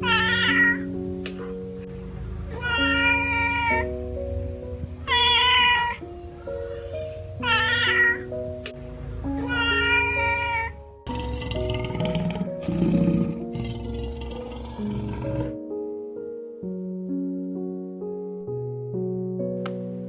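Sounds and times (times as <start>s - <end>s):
cat meowing: 0.0s - 0.9s, 2.5s - 3.9s, 5.0s - 6.0s, 7.4s - 8.3s, 9.4s - 10.8s
background music with simple melody: 0.0s - 20.0s.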